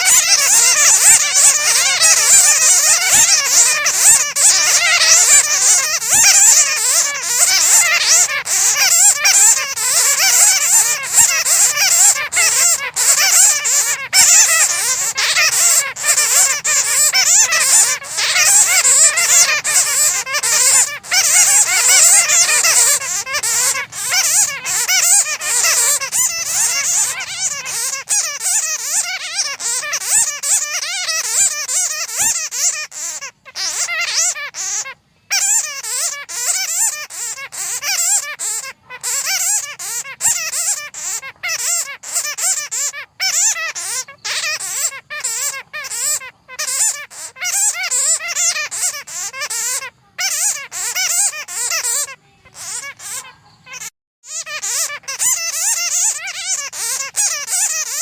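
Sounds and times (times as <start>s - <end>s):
bats squeaking and chattering: 0.0s - 58.0s.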